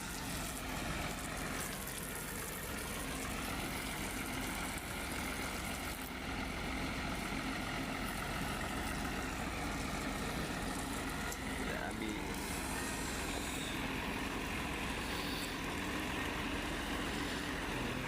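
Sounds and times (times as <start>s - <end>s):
engine running steadily: 0.0s - 18.0s
whining tones: 8.9s - 18.0s.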